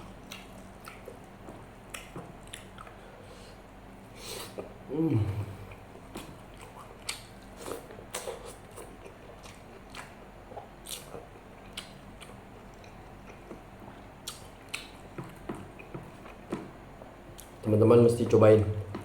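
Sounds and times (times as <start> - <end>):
person chewing food: 0.1 - 3.6, 5.4 - 17.6
wet mouth clicks and smacks: 14.2 - 14.9.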